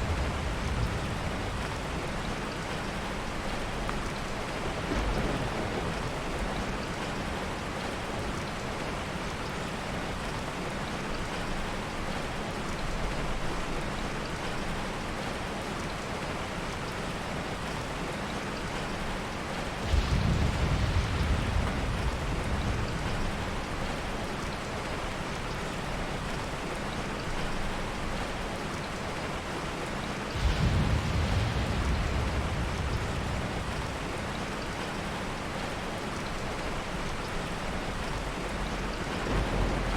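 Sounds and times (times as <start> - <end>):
soft thunder rolls: 0.0 - 3.9, 4.6 - 7.4, 19.7 - 25.6, 30.3 - 35.8, 37.8 - 39.9
heavy rain falling: 0.0 - 39.9.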